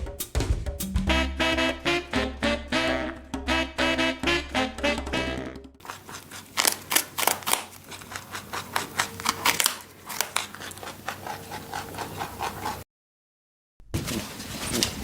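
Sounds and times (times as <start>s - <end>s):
scratchy scraping: 5.8s - 12.8s.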